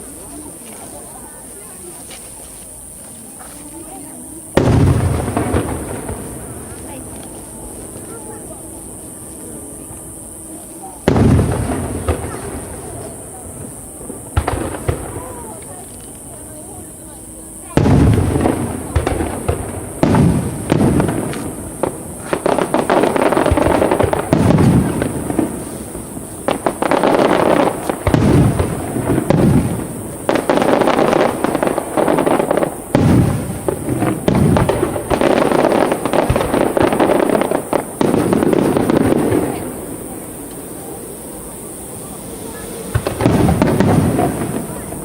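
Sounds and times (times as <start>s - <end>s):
fireworks bursting: 0.0s - 45.0s.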